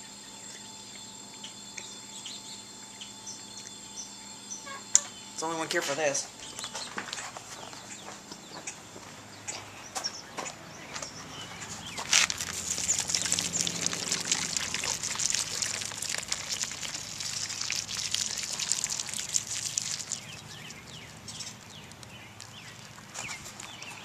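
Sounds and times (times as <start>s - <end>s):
beer pouring and splashing: 12.1s - 24.0s.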